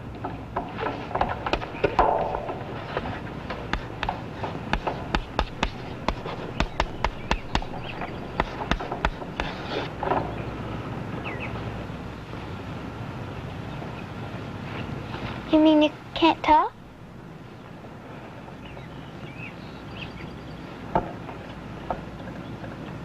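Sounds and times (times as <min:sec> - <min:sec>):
steady low hum: 0:00.0 - 0:23.0
sharp irregular clicks: 0:03.5 - 0:09.6.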